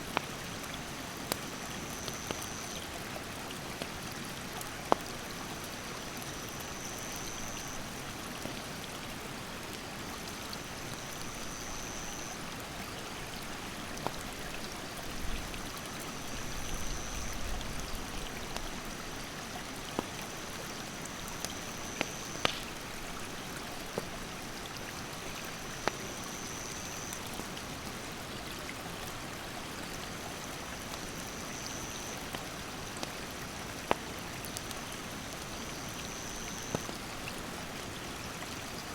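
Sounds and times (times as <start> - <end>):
campfire crackles and pops: 0.0 - 7.4, 13.9 - 14.4, 17.6 - 27.5, 30.7 - 37.1
mountain stream rushing: 0.0 - 38.9
high thin insect call: 6.4 - 7.8, 11.2 - 12.4, 21.2 - 22.7, 25.8 - 27.2, 35.6 - 36.9.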